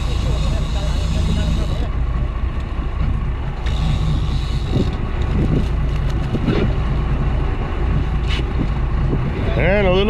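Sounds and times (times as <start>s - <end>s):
boat engine humming: 0.0s - 10.0s
wind noise on microphone: 3.7s - 10.0s.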